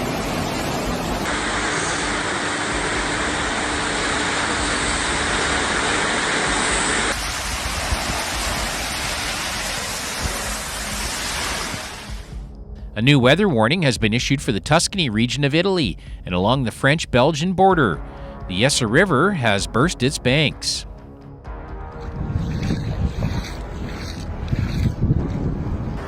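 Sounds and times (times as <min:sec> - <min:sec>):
rushing water: 0:00.0 - 0:12.4, 0:21.8 - 0:25.4.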